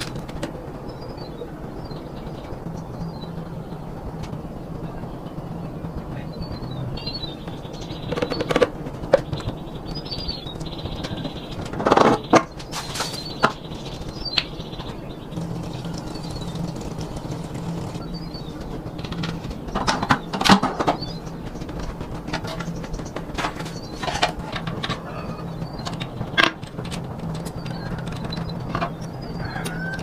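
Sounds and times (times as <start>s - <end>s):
small birds chirping: 0.0s - 30.0s
steady low hum: 0.0s - 30.0s.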